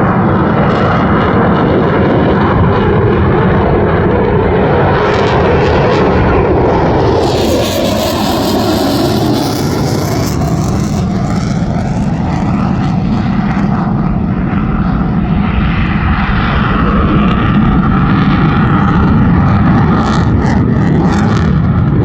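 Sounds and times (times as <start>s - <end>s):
jet engine roar: 0.0s - 22.0s.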